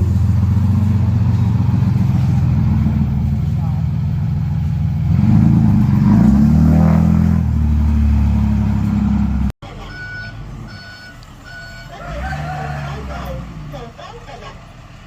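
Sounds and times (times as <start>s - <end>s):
heavy diesel engine under load: 0.0s - 15.0s
quieter diesel engine: 0.0s - 15.0s
reversing alarm beeping: 9.7s - 12.2s.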